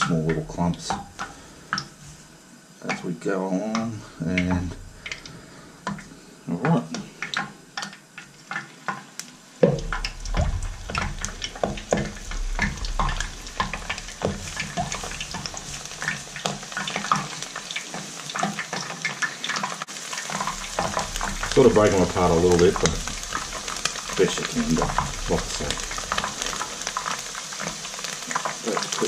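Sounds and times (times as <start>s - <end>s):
fish frying in oil: 0.0s - 29.0s
thump: 9.6s - 15.5s.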